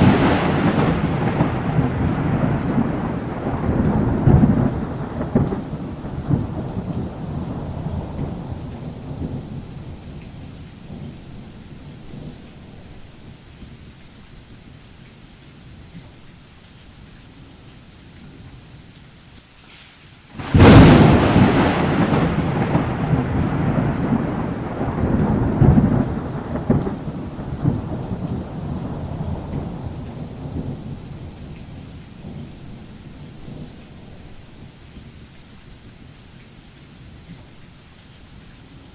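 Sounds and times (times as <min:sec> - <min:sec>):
thunder cracking and rumbling: 0:00.0 - 0:13.0, 0:20.4 - 0:34.4
steady rain: 0:00.0 - 0:38.9.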